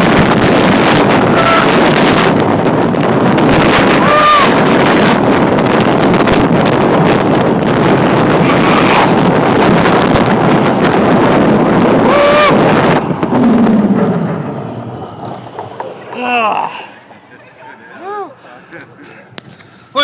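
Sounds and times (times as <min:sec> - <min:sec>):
wind rushing over microphone: 0:00.0 - 0:17.3
roller coaster rumble: 0:00.0 - 0:19.4
rider yelling: 0:03.8 - 0:04.8.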